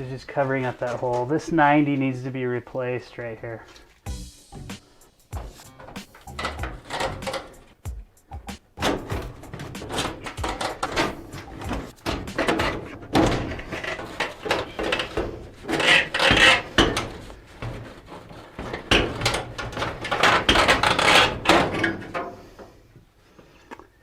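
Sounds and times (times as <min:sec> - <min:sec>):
scraping and knocking on metal pipe: 0:04.1 - 0:22.7.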